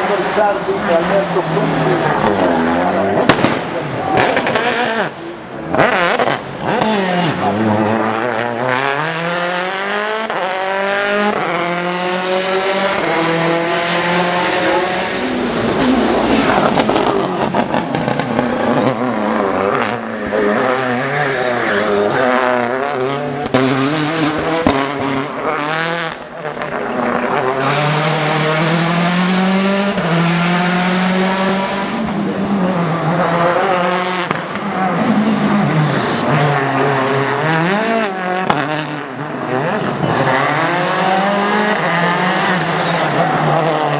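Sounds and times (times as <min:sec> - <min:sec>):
rally car engine accelerating: 0:00.0 - 0:43.9.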